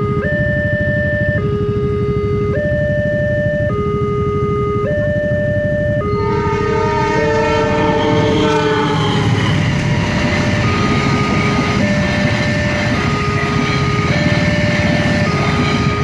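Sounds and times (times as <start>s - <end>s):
level crossing warning signal: 0.0s - 16.0s
train horn chord: 6.0s - 16.0s
passing train rumble and clatter: 6.1s - 16.0s.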